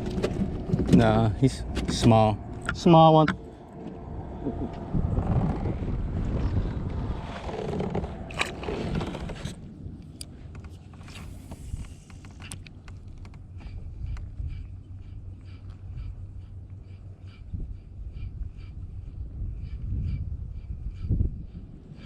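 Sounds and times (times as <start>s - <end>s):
kayak handling scraping and bumping: 0.0s - 2.2s, 7.3s - 9.7s
low rumble: 0.0s - 22.0s.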